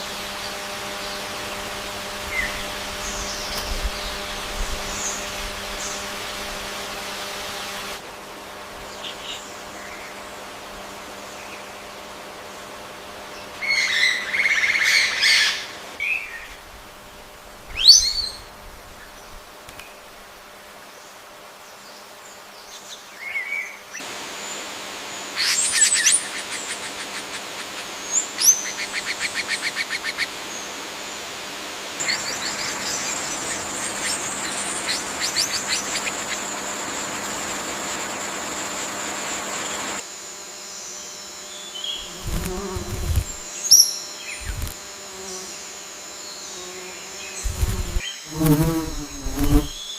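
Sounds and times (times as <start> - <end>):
insect drone: 0.0 - 49.9
bird calls and chirps: 17.7 - 20.0, 40.8 - 44.7.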